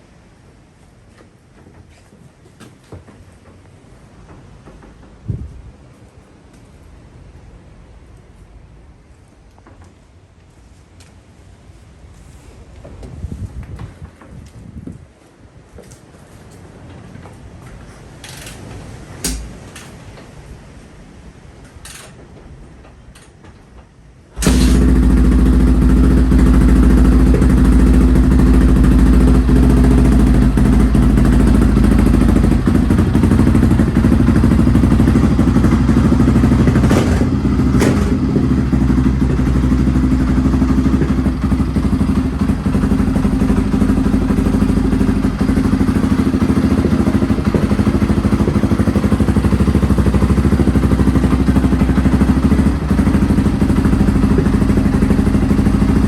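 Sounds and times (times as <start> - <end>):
motorcycle engine running: 24.4 - 56.0.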